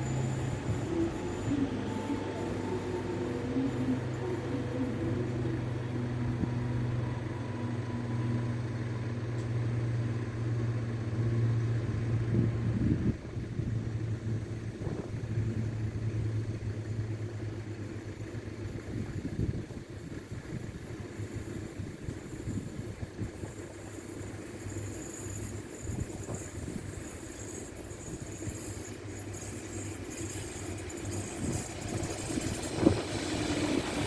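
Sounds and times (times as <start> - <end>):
vehicle engines idling: 0.0 - 20.2, 29.7 - 34.0.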